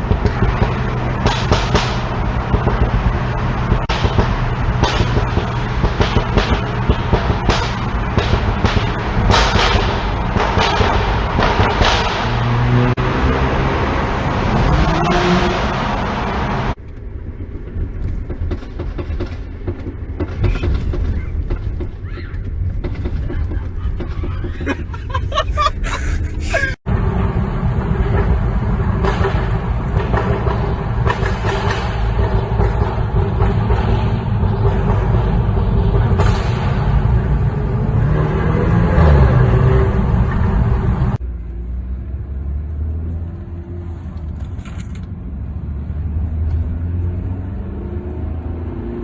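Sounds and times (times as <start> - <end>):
exhaust crackling pops: 16.7 - 25.3.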